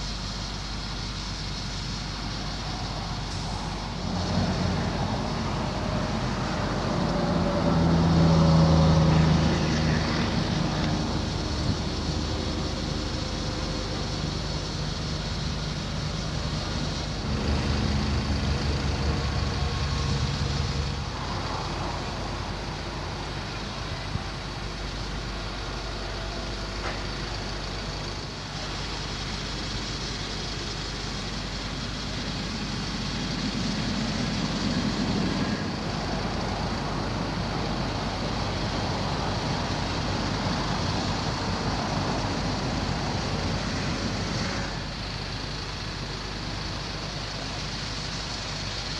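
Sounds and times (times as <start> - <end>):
diesel truck engine running: 0.0 - 48.9.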